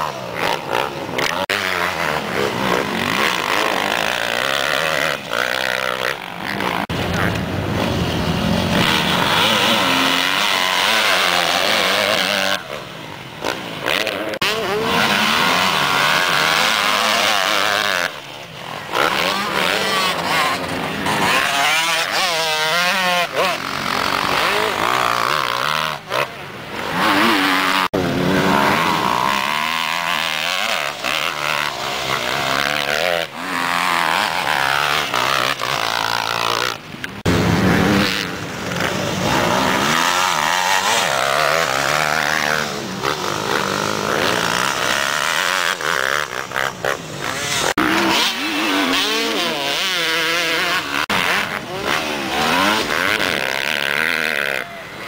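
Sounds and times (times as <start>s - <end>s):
motocross bikes revving: 0.0s - 55.0s.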